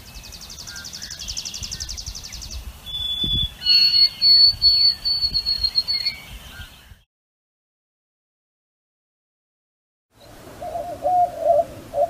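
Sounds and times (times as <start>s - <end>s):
sparrow whistled song: 0.0s - 7.1s.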